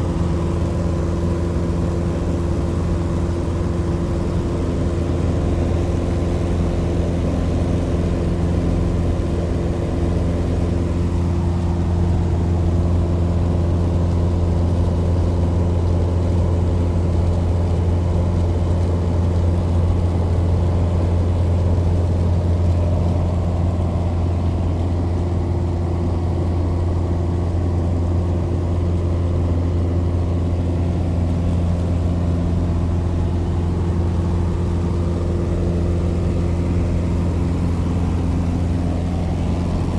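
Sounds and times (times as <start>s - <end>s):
light aircraft engine and propeller: 0.0s - 39.9s.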